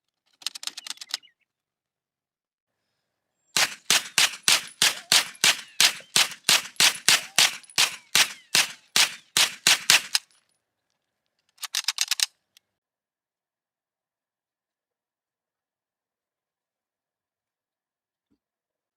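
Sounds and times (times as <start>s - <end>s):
hand tool striking metal: 3.6s - 10.2s.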